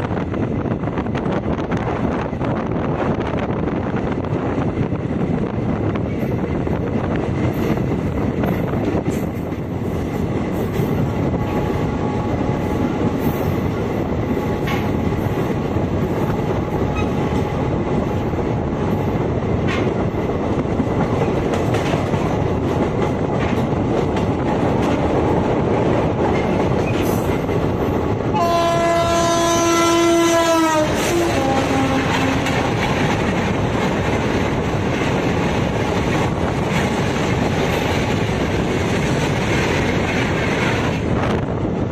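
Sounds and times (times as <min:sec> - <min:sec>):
passing train coaches rushing: 0:00.0 - 0:41.9
train rumbling: 0:00.0 - 0:41.9
wind on microphone: 0:00.0 - 0:41.9
wheels clicking over rail joints: 0:21.0 - 0:25.3
train horn: 0:28.3 - 0:33.0.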